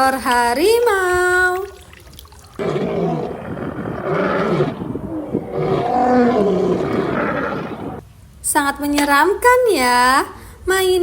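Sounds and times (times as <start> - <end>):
tiger roaring and growling: 2.5 - 8.0.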